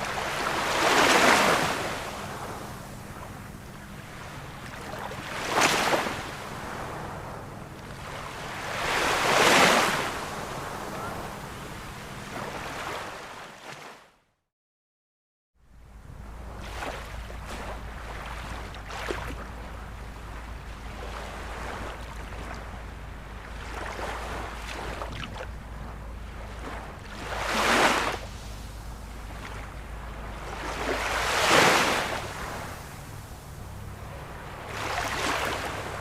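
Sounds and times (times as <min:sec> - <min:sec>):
ocean surf washing: 0:00.0 - 0:13.9, 0:15.8 - 0:36.0
waves breaking: 0:00.0 - 0:14.1, 0:15.9 - 0:36.0
steady low rumble: 0:01.5 - 0:08.9, 0:15.6 - 0:36.0.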